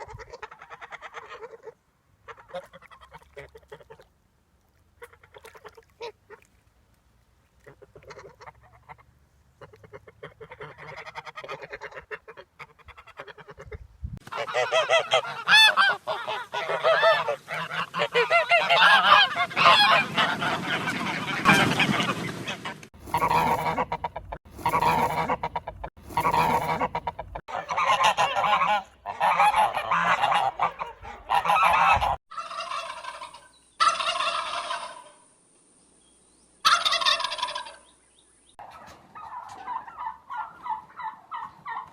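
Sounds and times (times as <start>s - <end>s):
geese honking: 7.7s - 35.2s, 36.6s - 37.8s, 38.6s - 41.9s.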